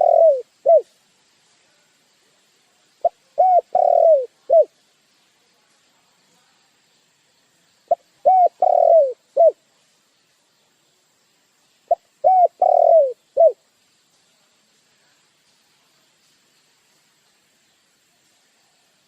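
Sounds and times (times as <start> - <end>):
dove cooing: 0.0 - 0.9, 3.0 - 4.7, 7.9 - 9.6, 11.9 - 13.6.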